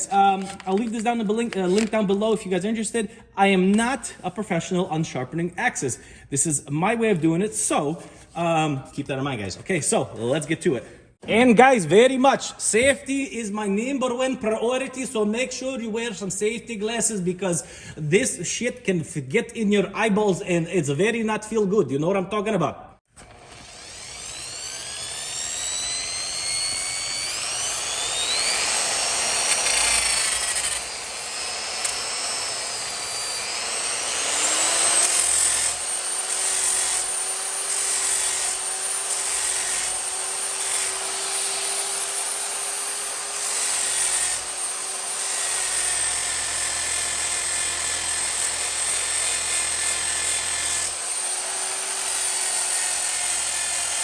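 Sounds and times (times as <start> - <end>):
angle grinder whine: 23.2 - 54.0
sanding disc grinding metal: 23.5 - 45.9.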